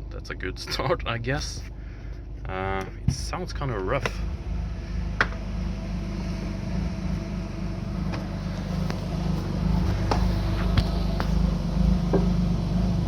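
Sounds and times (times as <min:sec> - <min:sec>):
car engine idling roughly: 0:00.0 - 0:13.0.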